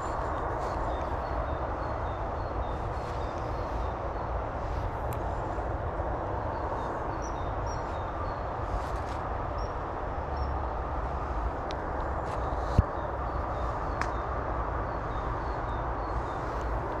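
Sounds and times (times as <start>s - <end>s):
rushing background noise: 0.0s - 17.0s.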